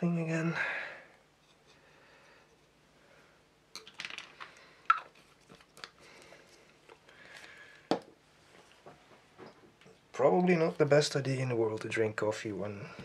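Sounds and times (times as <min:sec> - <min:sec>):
tape roll clicks and rustles: 0:03.7 - 0:07.2.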